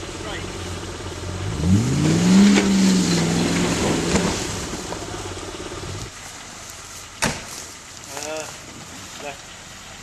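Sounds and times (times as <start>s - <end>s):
vehicle engine revving: 0.0s - 6.1s.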